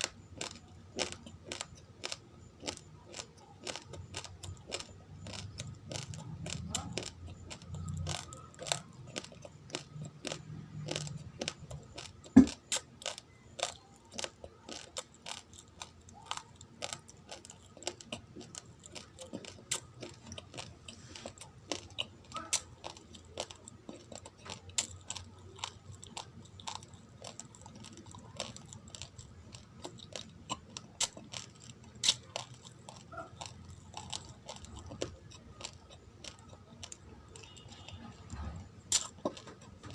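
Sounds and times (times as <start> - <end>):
rice grains crunching: 0.0 - 38.0.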